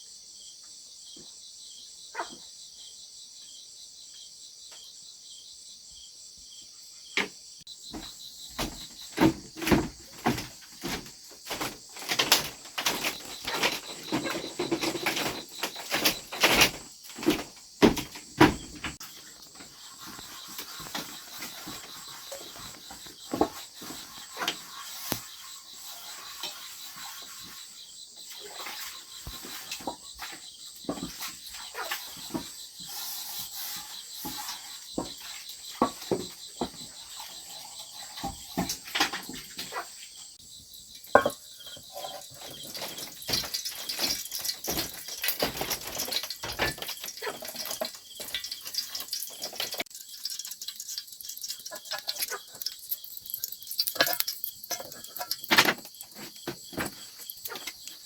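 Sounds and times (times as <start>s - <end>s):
insects chirring: 0.0s - 58.0s
sharp knocks and clatter: 7.9s - 25.5s, 34.1s - 37.3s, 41.0s - 58.0s.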